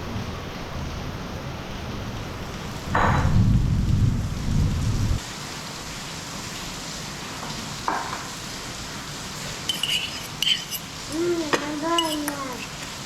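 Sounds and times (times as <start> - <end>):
heavy rain hissing: 0.0 - 13.0
low rumble of thunder: 2.8 - 5.2.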